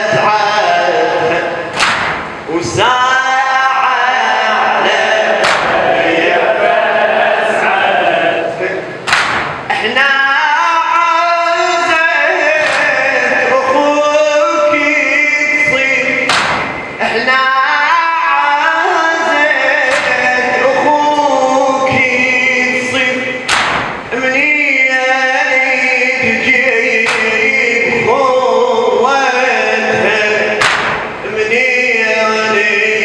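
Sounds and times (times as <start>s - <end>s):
men chanting a lament: 0.0s - 33.0s
sharp slaps: 1.7s - 2.5s, 5.4s - 6.0s, 9.0s - 9.8s, 12.6s - 13.2s, 16.2s - 17.0s, 19.8s - 20.4s, 23.4s - 24.2s, 27.0s - 27.6s, 30.6s - 31.2s.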